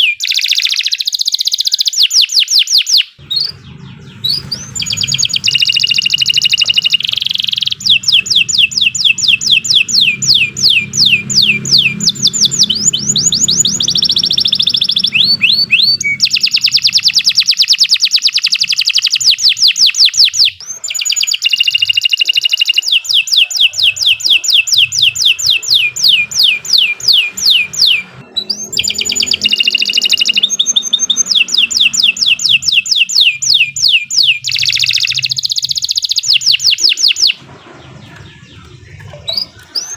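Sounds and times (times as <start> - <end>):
canary singing: 0.0 - 39.9
low hum: 3.2 - 17.0, 23.8 - 33.3.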